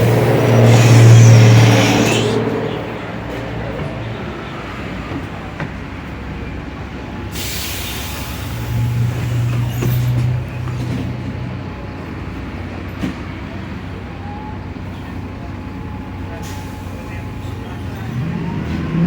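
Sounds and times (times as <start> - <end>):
bus diesel engine running: 0.0 - 19.0
short sharp hiss: 0.6 - 2.4.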